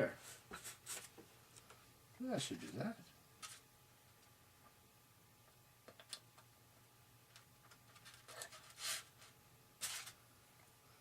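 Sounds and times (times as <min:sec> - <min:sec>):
short scratchy scrape: 0:08.5 - 0:09.1.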